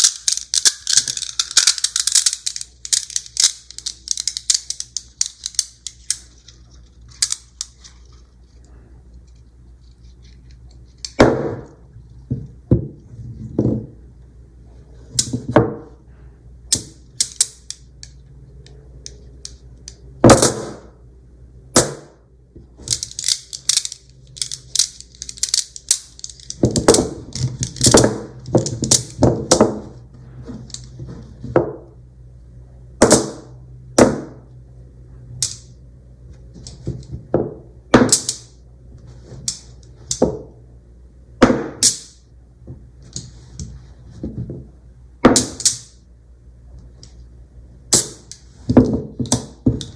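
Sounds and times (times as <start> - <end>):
magnetic balls clicking together: 0.0 - 6.3, 22.8 - 29.6.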